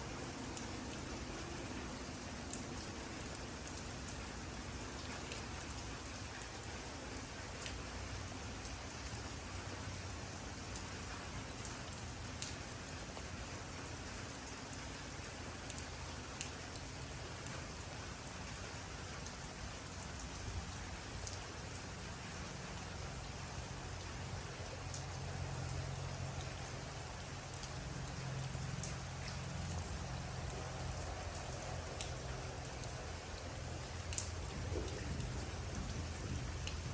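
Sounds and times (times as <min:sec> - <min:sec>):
steady rain falling: 0:00.0 - 0:36.9
rain drop taps: 0:26.7 - 0:36.9
low rumble: 0:34.3 - 0:36.9.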